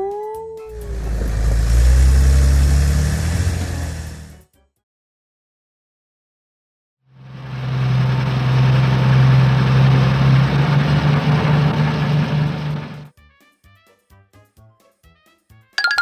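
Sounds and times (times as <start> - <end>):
vehicle engine humming: 0.7 - 4.4, 7.4 - 13.1.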